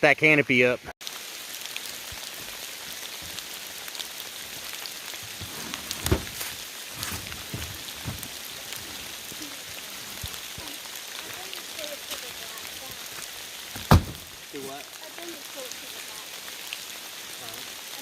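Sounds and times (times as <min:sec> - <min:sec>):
heavy rain: 0:01.0 - 0:18.0
dull knocks: 0:05.9 - 0:08.3, 0:13.8 - 0:14.2.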